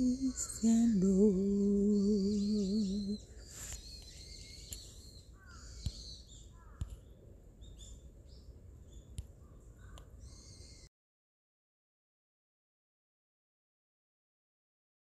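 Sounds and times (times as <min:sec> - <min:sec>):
faint outdoor hush: 0:00.0 - 0:05.8
birds chirping: 0:00.0 - 0:10.9.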